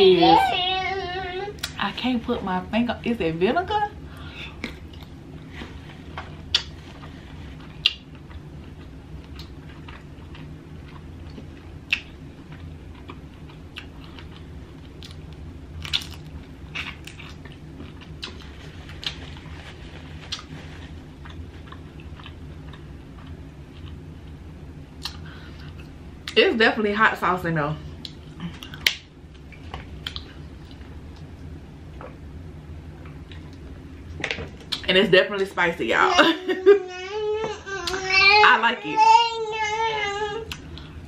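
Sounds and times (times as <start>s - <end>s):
steady low hum: 0.0s - 41.0s
chewing with wet smacks: 7.6s - 19.2s, 21.2s - 24.0s, 28.0s - 31.3s.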